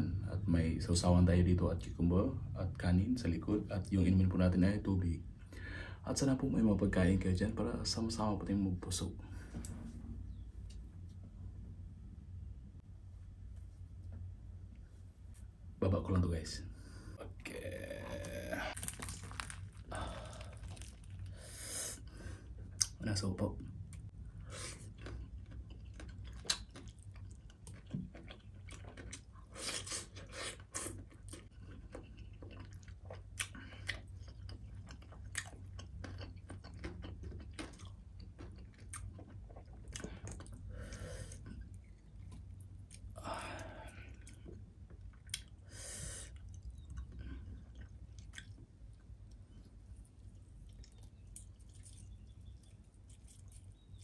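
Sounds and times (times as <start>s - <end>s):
person chewing: 17.2s - 23.0s, 23.9s - 54.0s
loud crunches: 18.0s - 21.5s.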